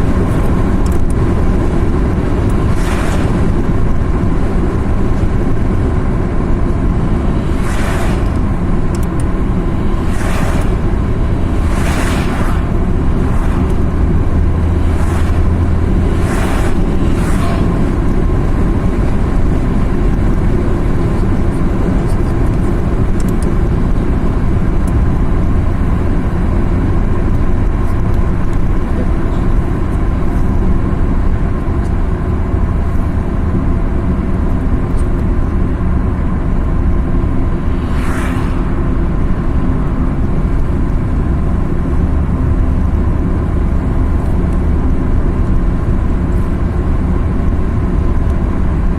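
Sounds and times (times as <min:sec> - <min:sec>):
car engine and tyre rumble: 0:00.0 - 0:48.9
brief whooshes: 0:02.5 - 0:03.6, 0:07.4 - 0:14.0, 0:14.6 - 0:18.1, 0:37.4 - 0:39.5.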